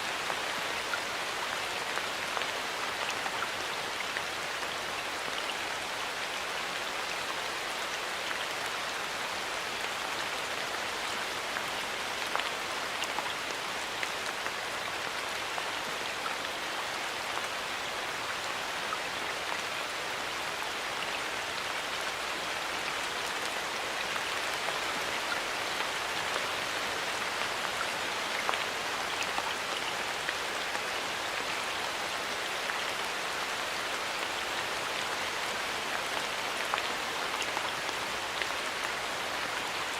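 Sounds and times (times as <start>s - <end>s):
light rain falling in forest: 0.0s - 39.9s.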